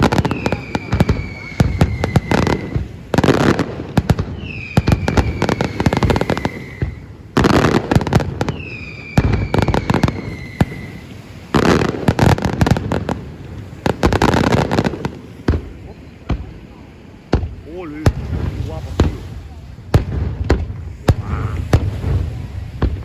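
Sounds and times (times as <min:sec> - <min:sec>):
firework whistles falling in pitch: 0:00.0 - 0:03.1, 0:04.2 - 0:07.8, 0:08.4 - 0:11.4
firework crackling: 0:00.0 - 0:23.0.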